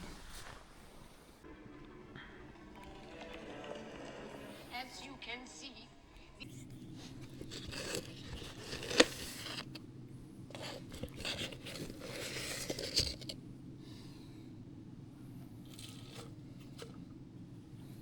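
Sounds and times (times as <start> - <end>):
rustling and handling noises: 0.0 - 1.5, 6.2 - 18.0
faint low hum: 0.0 - 18.0.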